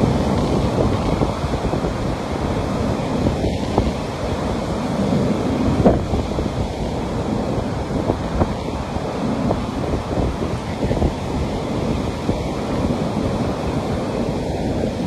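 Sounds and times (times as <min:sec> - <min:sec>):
sea waves washing on beach: 0:00.0 - 0:15.0
wind buffeting microphone: 0:00.0 - 0:15.0.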